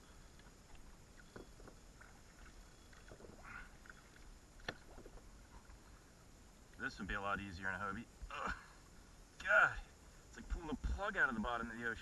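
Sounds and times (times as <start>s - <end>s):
faint clicks and knocks from kayak: 0.0s - 7.6s.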